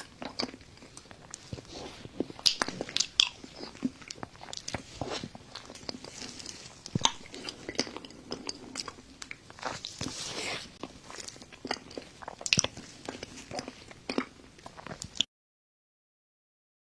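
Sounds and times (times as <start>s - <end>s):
chewing and biting: 0.0s - 15.3s
sharp mouth clicks and smacks: 2.4s - 4.8s, 11.7s - 12.8s.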